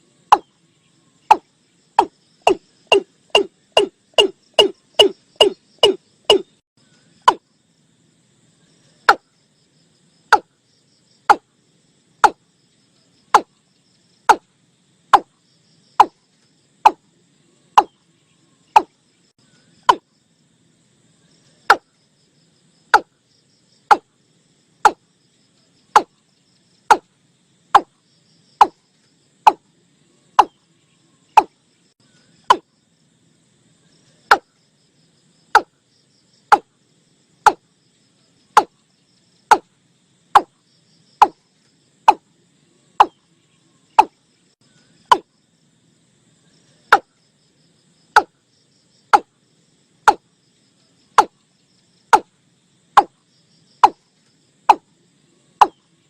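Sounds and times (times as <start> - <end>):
faint insects chorus: 0.0 - 56.0
bird knocking calls: 0.3 - 0.5, 1.3 - 6.6, 7.2 - 7.4, 11.3 - 11.5, 12.2 - 12.4, 13.3 - 13.6, 14.3 - 14.5, 15.1 - 15.3, 16.0 - 16.2, 17.8 - 18.0, 18.7 - 19.0, 19.8 - 20.1, 21.7 - 21.9, 22.9 - 23.1, 23.9 - 24.1, 24.8 - 25.0, 26.0 - 26.2, 28.6 - 28.8, 30.4 - 30.6, 32.5 - 32.7, 34.3 - 34.5, 36.5 - 36.7, 38.6 - 38.8, 43.0 - 43.2, 44.0 - 44.2, 45.1 - 45.3, 48.2 - 48.4, 49.1 - 49.3, 51.2 - 51.4, 53.0 - 53.2.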